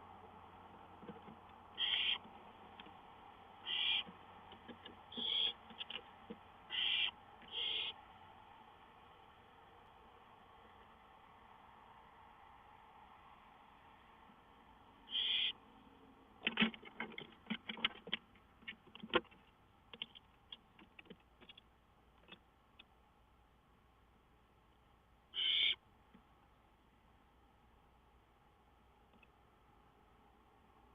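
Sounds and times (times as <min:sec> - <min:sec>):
owl rasping hiss-screeches: 0:01.8 - 0:02.2, 0:03.6 - 0:04.1, 0:05.1 - 0:05.6, 0:06.7 - 0:08.0, 0:15.1 - 0:15.6, 0:25.3 - 0:25.8
sharp clicks and knocks: 0:04.0 - 0:05.0, 0:16.4 - 0:22.9.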